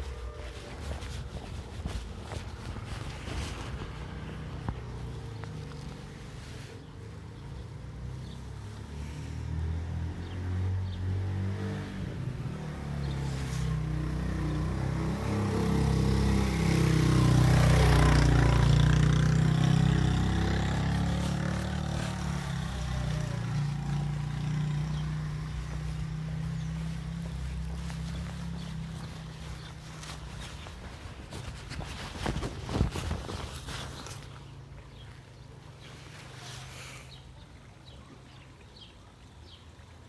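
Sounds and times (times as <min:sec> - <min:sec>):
vehicle engine passing by: 0:00.0 - 0:38.2.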